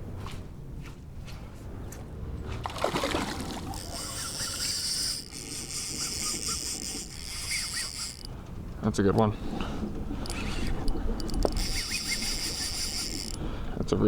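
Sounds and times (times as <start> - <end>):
splashy rustle of water: 2.6 - 4.0
fishing reel whirring: 3.0 - 8.8, 9.5 - 13.7.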